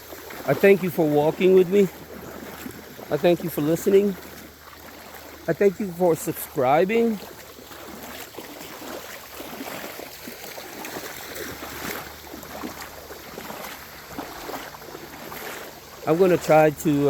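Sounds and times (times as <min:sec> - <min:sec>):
creek water splashing: 0:00.0 - 0:17.0.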